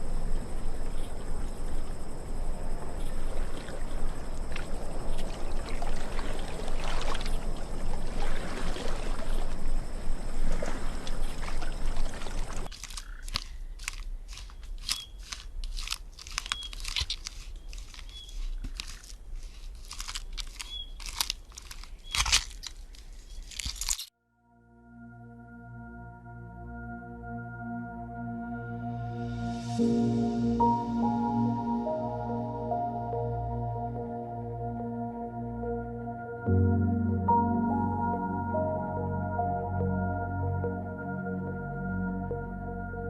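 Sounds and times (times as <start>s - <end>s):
crunching crackling clicks: 11.0s - 24.1s.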